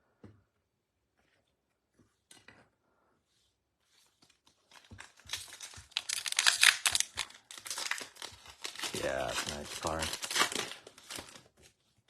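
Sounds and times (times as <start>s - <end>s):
wrapper tearing and crinkling: 4.6s - 11.6s.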